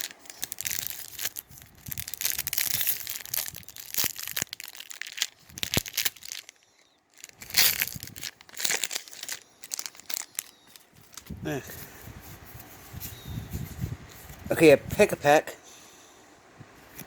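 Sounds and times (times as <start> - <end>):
foil wrapper tearing and crinkling: 0.0 - 11.4.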